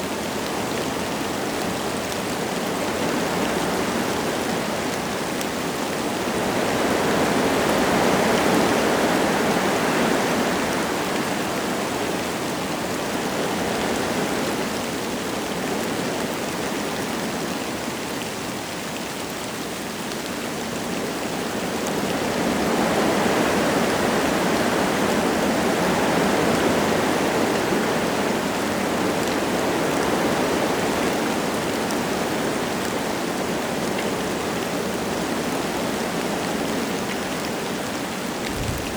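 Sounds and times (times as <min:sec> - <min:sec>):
light rain falling: 0:00.0 - 0:38.9
wind gusting through trees: 0:20.5 - 0:38.9.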